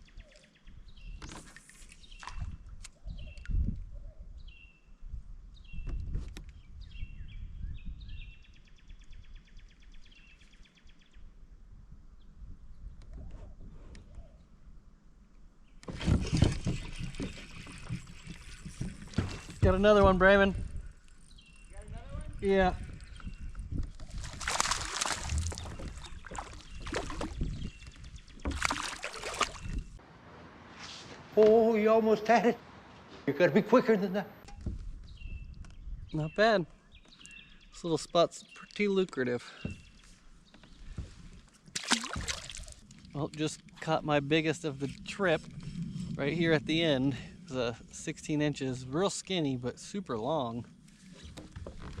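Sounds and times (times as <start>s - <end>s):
songbird singing: 0.0s - 1.4s, 2.0s - 11.4s, 15.6s - 30.0s, 33.5s - 45.6s
water splashing and sloshing: 1.2s - 2.9s, 15.8s - 19.8s, 23.7s - 30.0s, 40.8s - 43.9s
low rumble: 42.9s - 48.9s.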